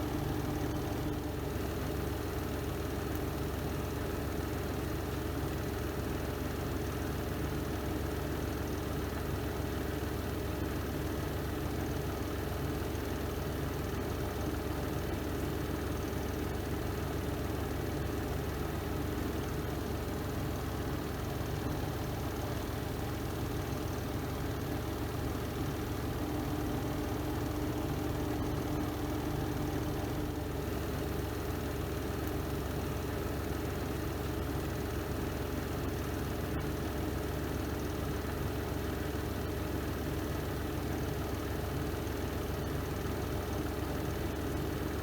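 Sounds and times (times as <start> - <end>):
washing machine drum humming: 0.0 - 1.6, 19.6 - 32.8.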